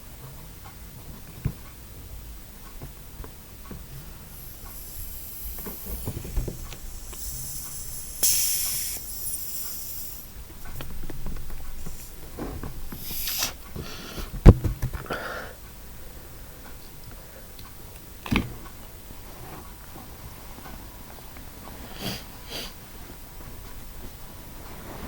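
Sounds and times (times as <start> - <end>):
breath blown into balloon: 4.3 - 10.3, 12.9 - 14.3.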